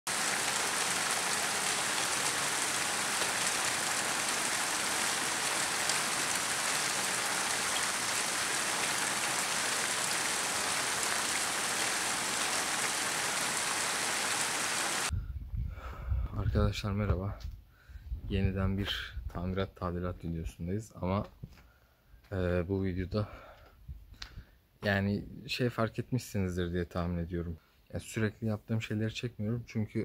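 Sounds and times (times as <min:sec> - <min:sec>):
steady rain: 0:00.1 - 0:15.1.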